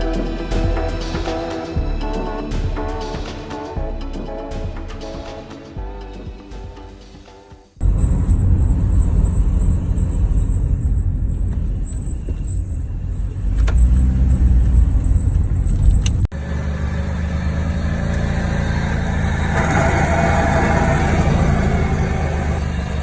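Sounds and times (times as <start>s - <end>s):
car engine and road rumble: 7.8s - 23.0s.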